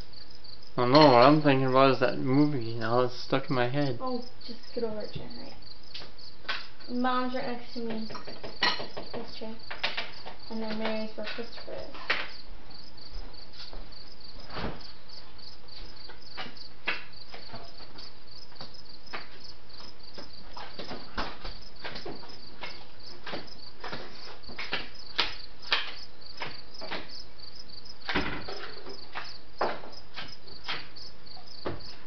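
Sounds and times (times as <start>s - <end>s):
crickets chirping: 0.0s - 32.0s
sharp clicks and knocks: 7.8s - 12.4s, 20.1s - 27.2s, 28.0s - 32.0s.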